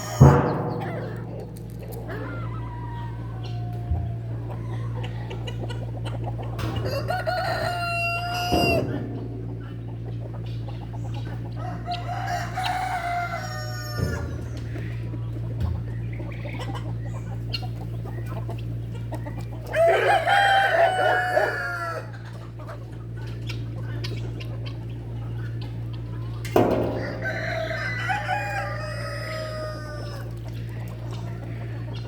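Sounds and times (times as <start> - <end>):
rooster crowing: 0.0 - 1.4, 2.0 - 5.6, 6.6 - 9.1, 11.6 - 14.9, 19.6 - 22.2, 26.6 - 30.4
steady low hum: 0.0 - 32.0.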